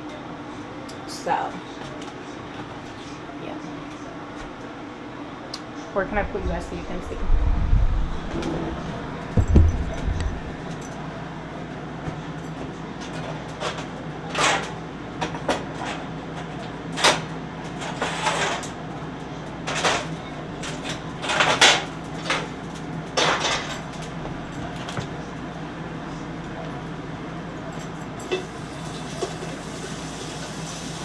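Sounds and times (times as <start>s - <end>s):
low hum: 6.0s - 11.8s
kitchen utensils scraping: 8.0s - 12.4s.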